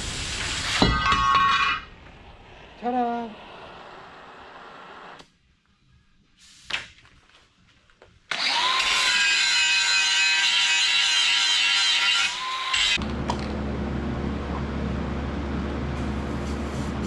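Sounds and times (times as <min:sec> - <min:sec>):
power tool cutting steel plate: 0:08.3 - 0:13.0.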